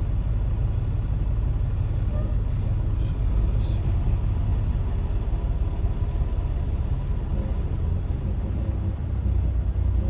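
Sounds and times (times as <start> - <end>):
diesel truck engine rumble: 0.0 - 10.0
road noise: 0.0 - 10.0.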